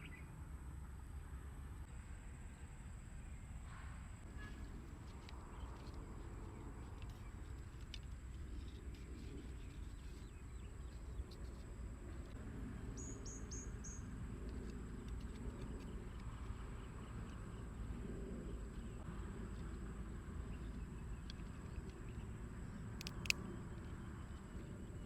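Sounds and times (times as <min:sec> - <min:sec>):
bird chirping: 0:00.0 - 0:00.3, 0:04.4 - 0:19.1, 0:20.4 - 0:25.0
small clicks: 0:22.8 - 0:24.5.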